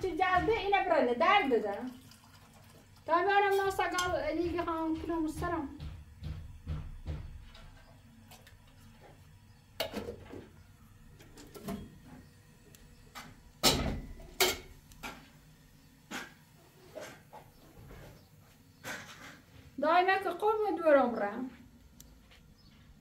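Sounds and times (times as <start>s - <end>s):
knocks and bangs: 0.0s - 0.9s, 3.8s - 7.6s.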